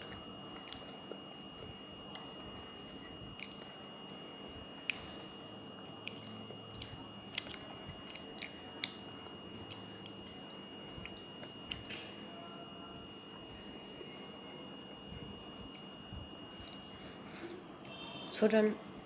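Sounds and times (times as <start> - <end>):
chewing clay cup pieces: 0.0 - 17.2.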